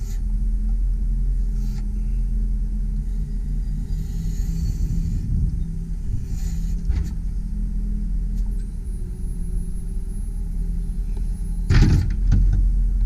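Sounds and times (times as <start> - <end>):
boom hydraulics working: 0.0 - 13.0
truck engine humming: 0.0 - 13.0
loud bump: 11.7 - 12.6.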